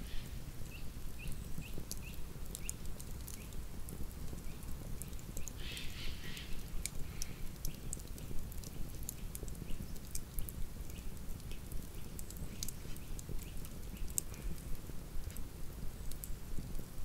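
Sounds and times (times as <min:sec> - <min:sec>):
low rumble of burning fire: 0:00.0 - 0:17.0
campfire crackling and popping: 0:00.1 - 0:17.0.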